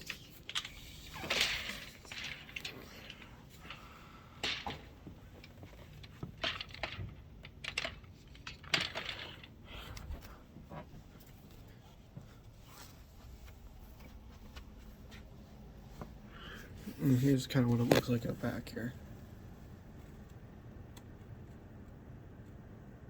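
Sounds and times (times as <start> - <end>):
light clicks and clatters: 0.0 - 15.3.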